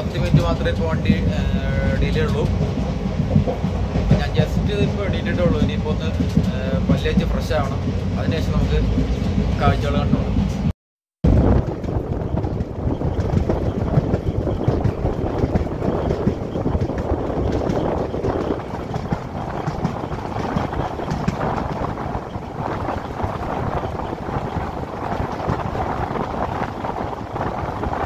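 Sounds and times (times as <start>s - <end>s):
train wheels rumbling on rails: 0.0s - 10.7s, 11.3s - 28.0s
wind buffeting microphone: 0.0s - 28.0s.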